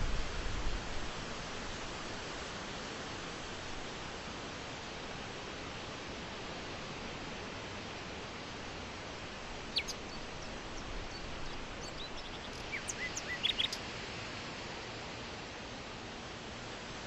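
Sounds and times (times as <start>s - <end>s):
steady hiss: 0.0s - 17.0s
small birds chirping: 9.6s - 13.8s.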